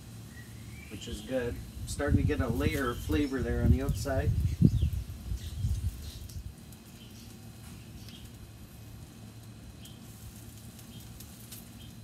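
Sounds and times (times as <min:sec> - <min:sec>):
low outdoor background hum: 0:00.0 - 0:12.0
faint bird chirps: 0:00.3 - 0:01.3.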